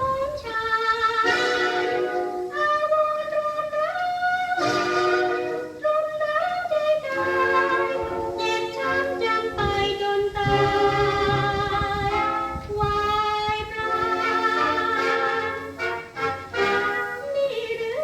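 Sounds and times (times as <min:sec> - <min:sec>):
woman singing held notes: 0:00.0 - 0:18.0
band accompaniment: 0:13.9 - 0:17.2.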